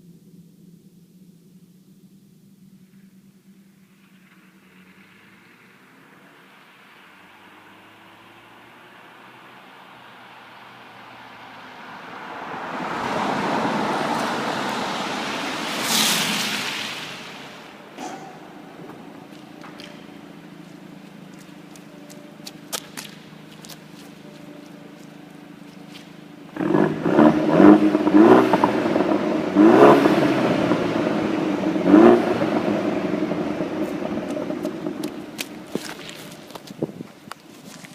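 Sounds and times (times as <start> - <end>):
car engine and exhaust in tunnel: 0.0 - 37.9
sharp rush: 12.8 - 20.6.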